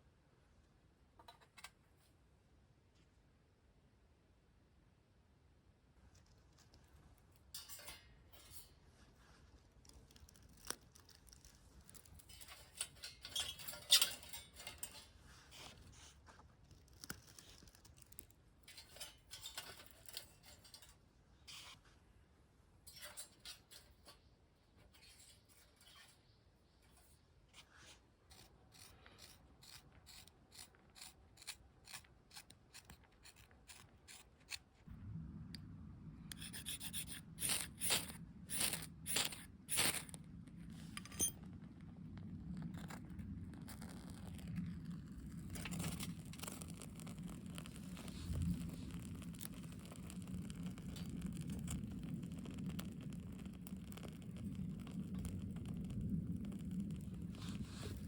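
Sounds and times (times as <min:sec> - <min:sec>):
hand scraping and rustling: 0:36.4 - 0:41.6.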